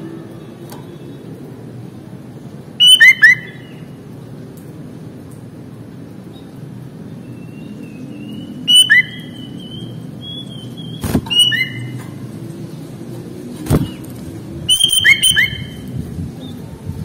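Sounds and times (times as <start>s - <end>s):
bird whistling and chirping: 2.8s - 3.8s, 7.3s - 12.0s, 14.7s - 15.9s.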